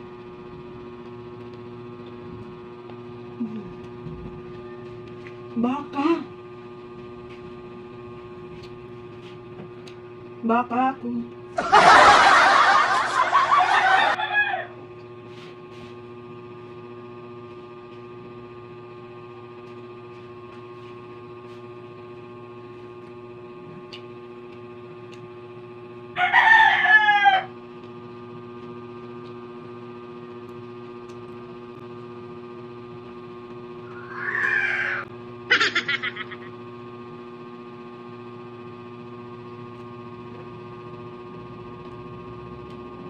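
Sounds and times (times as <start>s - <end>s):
steady hum: 0.0s - 26.2s, 27.4s - 41.3s
rooster crowing: 11.6s - 14.8s, 26.2s - 27.6s, 33.9s - 35.0s.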